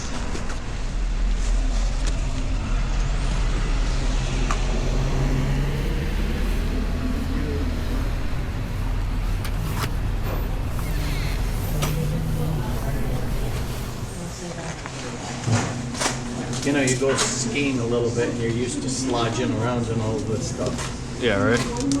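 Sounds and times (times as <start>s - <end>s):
motorcycle engine running: 1.4s - 14.4s.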